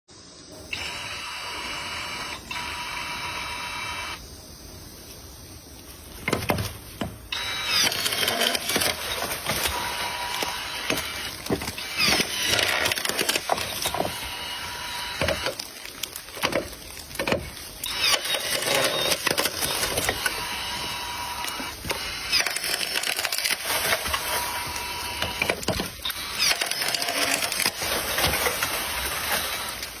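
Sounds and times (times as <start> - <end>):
steady noisy hiss: 0.1 - 30.0
wood cracking and splintering: 7.8 - 20.4.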